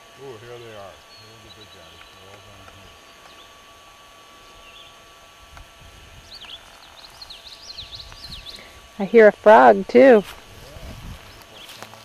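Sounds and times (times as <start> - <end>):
small bird chirping: 1.0 - 3.6, 4.5 - 5.0, 6.1 - 8.7.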